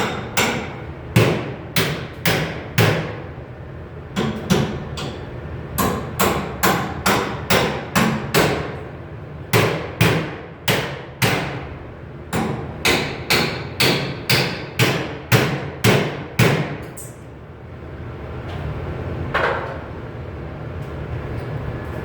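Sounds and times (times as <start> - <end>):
hammer striking sheet metal: 0.0 - 3.2, 12.4 - 16.9.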